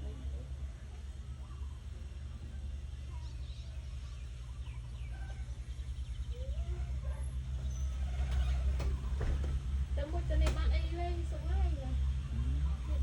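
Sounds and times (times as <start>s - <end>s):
chickens calling faintly: 0.1s - 9.6s.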